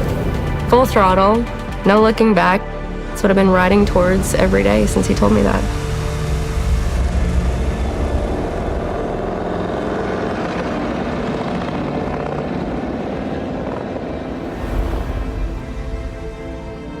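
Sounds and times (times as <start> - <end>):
motorcycle engine running: 0.0 - 1.8.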